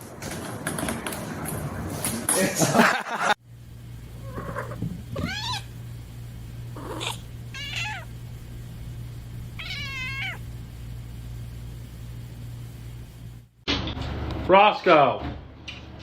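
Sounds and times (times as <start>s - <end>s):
cat meowing: 4.2s - 5.7s, 6.8s - 8.1s, 9.6s - 10.4s.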